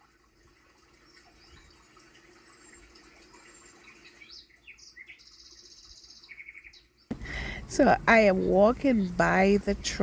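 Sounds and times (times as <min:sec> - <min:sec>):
faint birds chirping: 0:00.3 - 0:10.0
low steady hum: 0:07.1 - 0:10.0.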